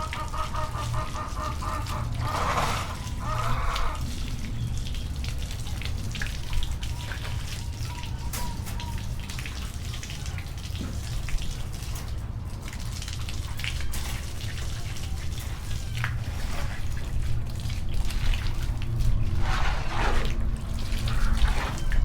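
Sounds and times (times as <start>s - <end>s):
water drips: 0.0s - 22.0s
water running and splashing: 0.0s - 22.0s
steady low rumble: 16.2s - 22.0s.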